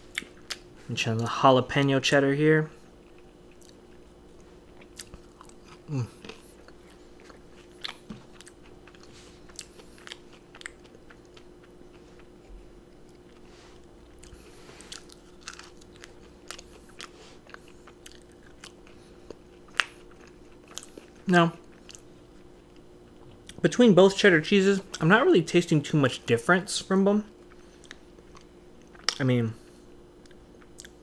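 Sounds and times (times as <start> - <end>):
faint steady hum: 0.0 - 31.0
wet chewing mouth clicks: 4.7 - 12.4, 30.2 - 31.0.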